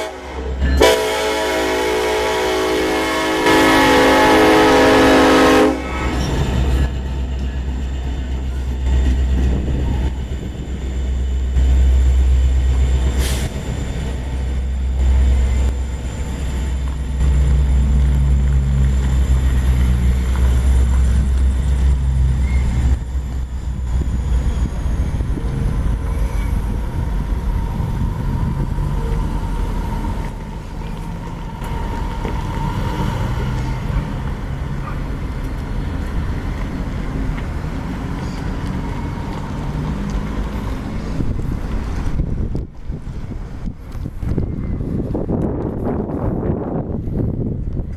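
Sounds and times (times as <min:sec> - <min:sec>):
train horn blast: 0:00.0 - 0:06.7
freight train rumbling: 0:00.0 - 0:47.9
high wheel squeal: 0:03.6 - 0:35.3.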